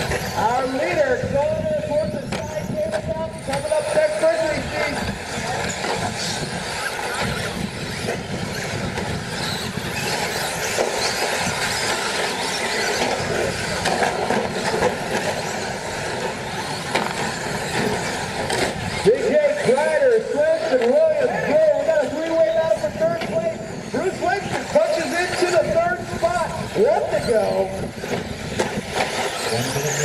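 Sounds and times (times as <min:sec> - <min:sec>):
electric motor whine: 0:00.0 - 0:20.1, 0:21.0 - 0:30.0
tyres on dirt: 0:00.0 - 0:30.0.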